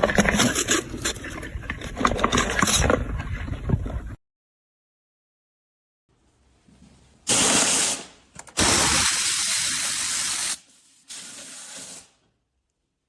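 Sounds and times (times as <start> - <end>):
loud hissing bursts: 7.3 - 12.2.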